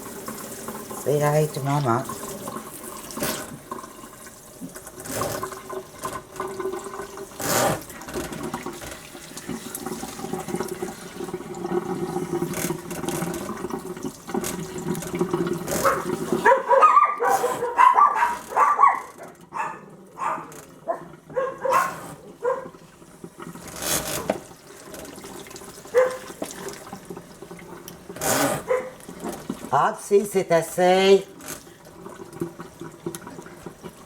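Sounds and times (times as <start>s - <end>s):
tap water running into bath: 0.0s - 34.0s
puppy whining and yipping: 15.8s - 22.7s, 26.0s - 26.2s, 28.6s - 29.0s.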